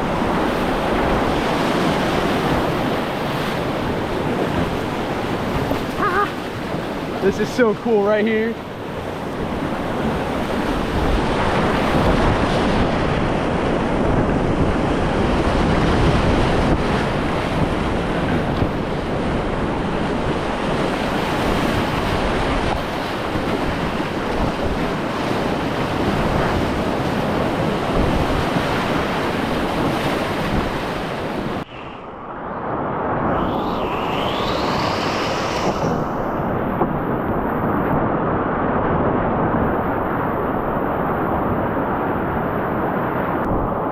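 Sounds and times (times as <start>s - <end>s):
whitewater rushing: 0.0s - 12.4s.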